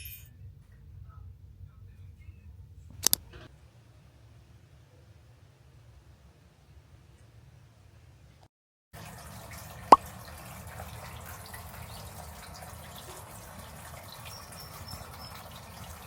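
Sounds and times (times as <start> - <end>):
sharp click: 3.0 - 3.4
running water: 9.0 - 16.0.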